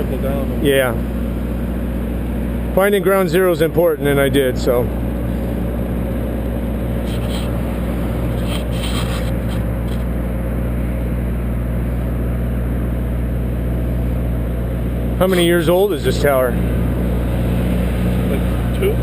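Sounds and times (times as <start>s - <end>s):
motor humming: 6.6s - 10.2s
faint scraping: 7.0s - 10.1s.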